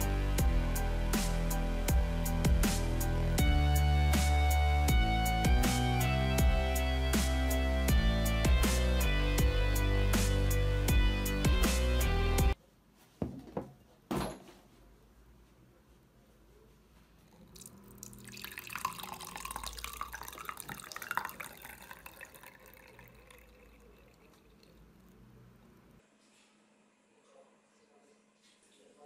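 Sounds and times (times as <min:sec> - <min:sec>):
liquid splashing into container: 0:17.4 - 0:25.2.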